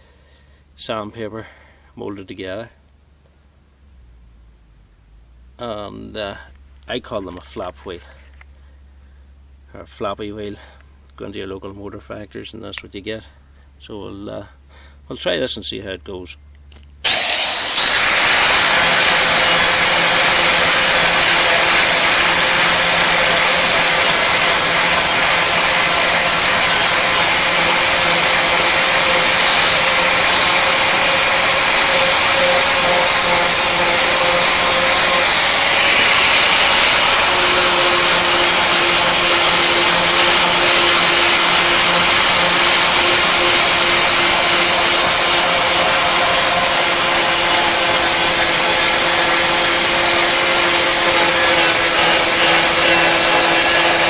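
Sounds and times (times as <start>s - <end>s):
angle grinder grinding metal: 17.0s - 54.0s.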